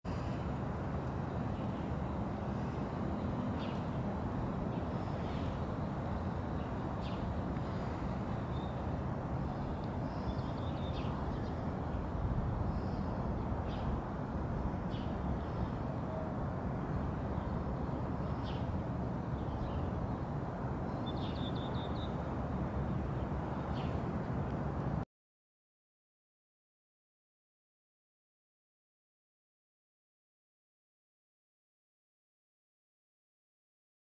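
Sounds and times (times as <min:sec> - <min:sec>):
steady low rumble: 0:00.1 - 0:20.9
small birds chirping: 0:02.5 - 0:04.0, 0:04.7 - 0:08.8, 0:09.5 - 0:14.0, 0:17.3 - 0:18.8, 0:20.9 - 0:22.2.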